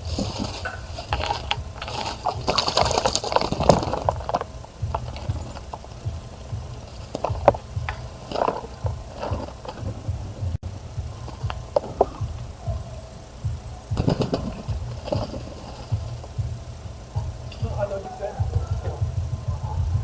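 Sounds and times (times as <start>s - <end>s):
birds splashing in bird bath: 0.0s - 19.2s
low rumble: 0.0s - 20.0s.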